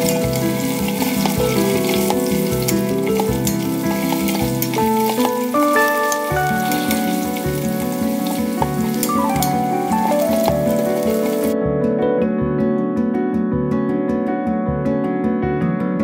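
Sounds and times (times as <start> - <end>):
potatoes sizzling in hot oil: 0.0 - 11.6
background music with beat: 0.0 - 12.8.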